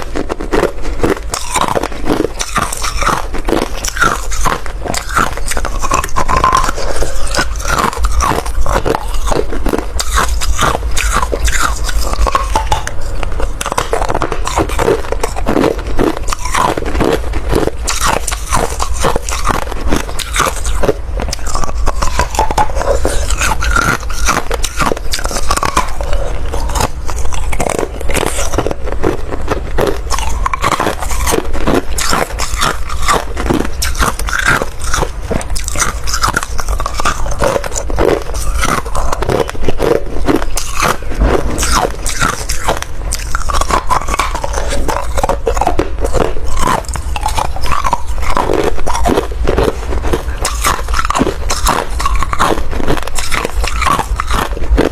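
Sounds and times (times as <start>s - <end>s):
ice crunching while chewed: 0.0s - 54.9s.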